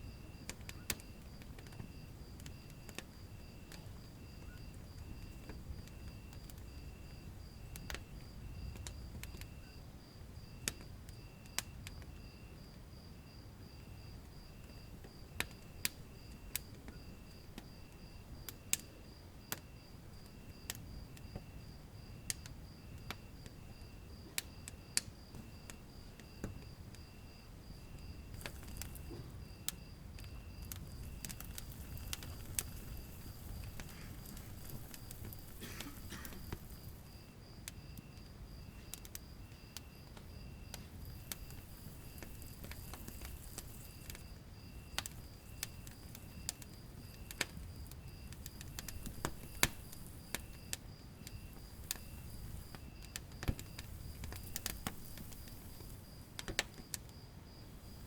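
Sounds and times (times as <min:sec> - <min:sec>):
low rumble of flames: 0:00.0 - 0:58.0
wood fire crackling and popping: 0:00.0 - 0:58.0
faint high chirping: 0:03.6 - 0:05.4.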